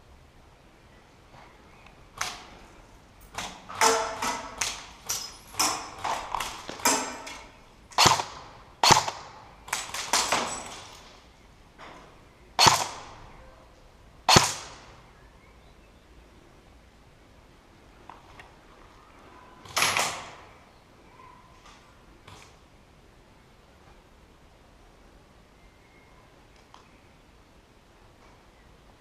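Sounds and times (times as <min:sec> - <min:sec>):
airsoft gun shots: 0:05.6 - 0:10.9, 0:12.6 - 0:13.2, 0:14.3 - 0:14.9.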